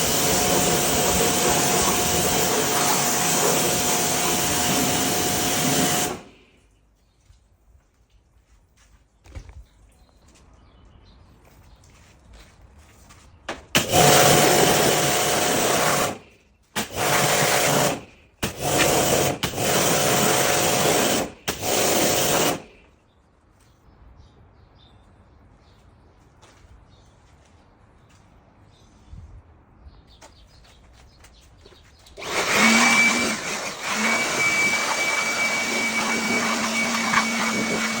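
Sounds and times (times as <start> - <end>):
high-pressure cleaning jet hissing: 0.0 - 6.4, 13.8 - 16.2, 16.8 - 22.7, 32.2 - 38.0.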